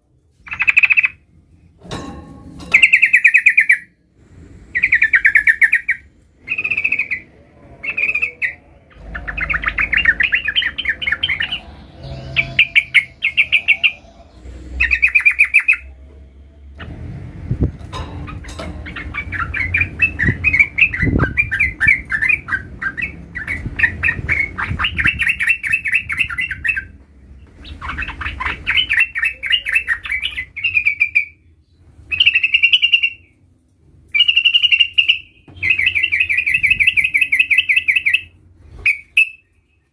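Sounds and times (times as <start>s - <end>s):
bird chattering song: 0.4s - 1.2s, 2.7s - 4.0s, 4.7s - 15.9s, 18.2s - 33.4s, 34.1s - 39.9s
low rumble: 8.6s - 29.4s.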